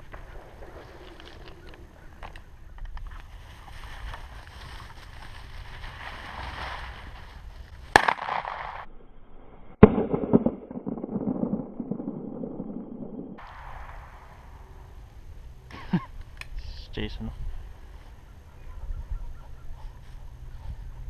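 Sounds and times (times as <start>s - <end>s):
field rustling: 0.0s - 8.9s
shotgun shots with echo: 7.9s - 8.9s, 9.8s - 11.7s.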